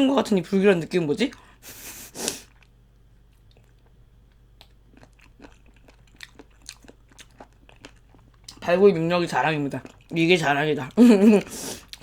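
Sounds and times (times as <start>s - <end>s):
chewing chicken feet: 3.3s - 10.3s, 11.2s - 12.0s.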